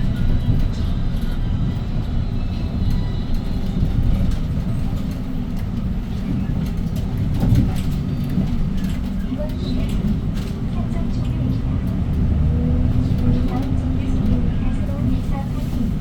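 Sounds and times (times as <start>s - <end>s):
bus engine droning: 0.0s - 16.0s
road noise: 0.0s - 16.0s
body rattles and clicks: 2.9s - 15.4s.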